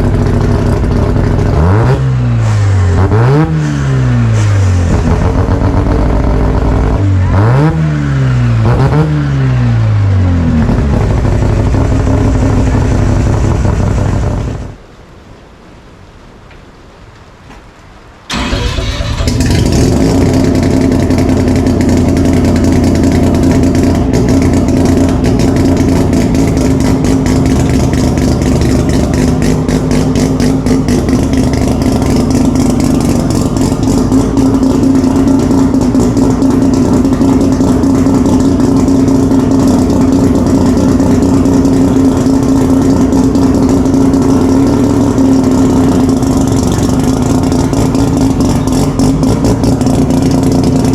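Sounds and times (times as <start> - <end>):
car engine fast idle: 18.3 - 50.9.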